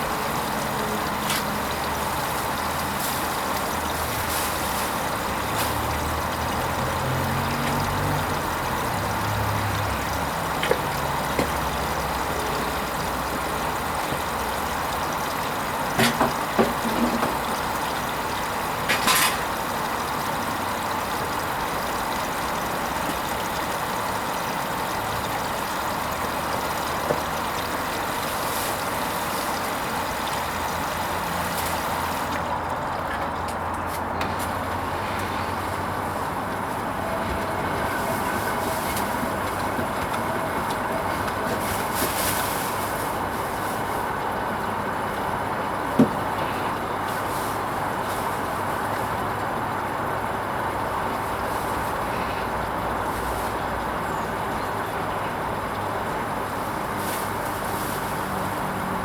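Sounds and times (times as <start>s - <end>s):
washing machine drum motor humming: 0.0s - 59.0s
washing machine water rushing: 0.0s - 59.0s
washing machine clicks and knocks: 15.8s - 17.6s.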